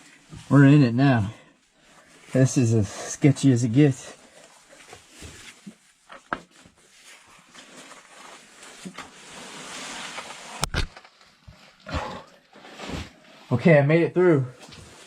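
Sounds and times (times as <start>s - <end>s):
clothing scraping against rock: 4.2s - 13.6s.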